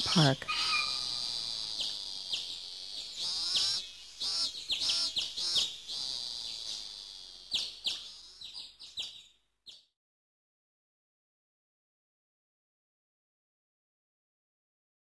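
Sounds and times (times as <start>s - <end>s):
steady high hiss: 0.0s - 8.6s
birds chirping and warbling: 0.0s - 9.9s.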